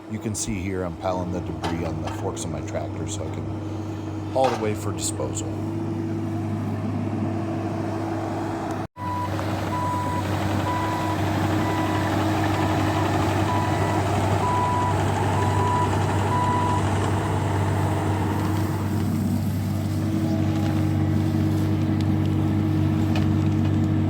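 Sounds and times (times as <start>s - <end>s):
diesel engine running: 0.0s - 24.0s
travel alarm beeping: 9.0s - 17.8s.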